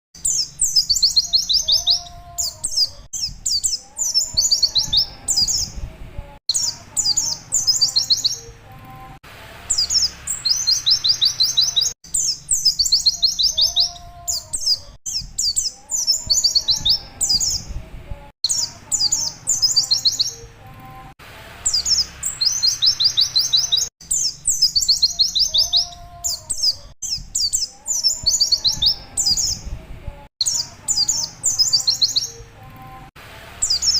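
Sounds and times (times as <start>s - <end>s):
bird singing high fast notes: 9.7s - 17.7s, 21.6s - 29.6s.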